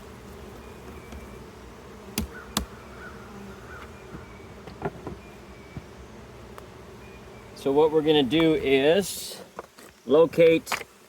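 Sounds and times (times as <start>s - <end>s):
honey bees buzzing: 0.0s - 11.0s
sharp knocks on hive parts: 2.1s - 2.8s, 3.7s - 6.7s.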